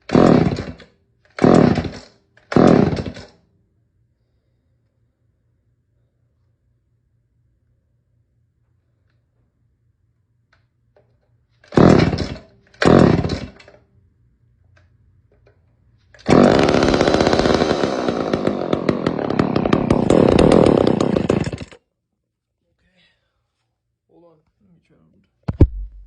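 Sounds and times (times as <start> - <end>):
chainsaw starting and running: 0.0 - 3.4, 11.6 - 13.7, 16.2 - 21.8.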